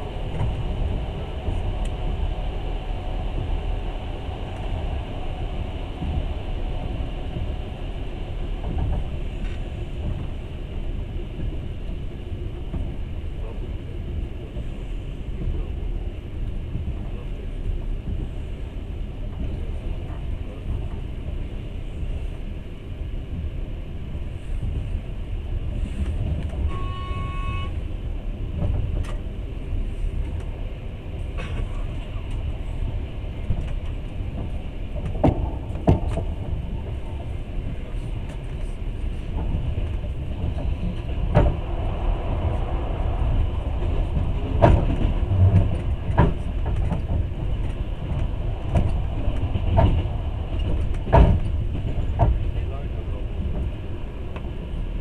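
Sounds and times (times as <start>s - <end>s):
train rumbling on rails: 0.0s - 55.0s
train horn: 26.6s - 27.8s.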